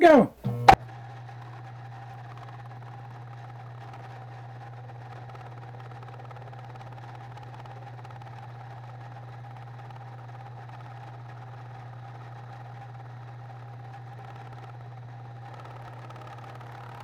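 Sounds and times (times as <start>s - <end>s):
milling machine humming and whining: 0.4s - 0.8s.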